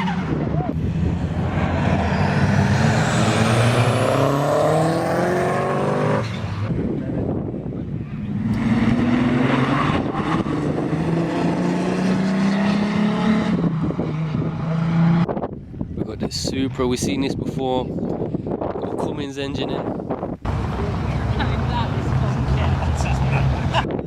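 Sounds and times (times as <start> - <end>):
car engine accelerating: 0.0 - 15.4.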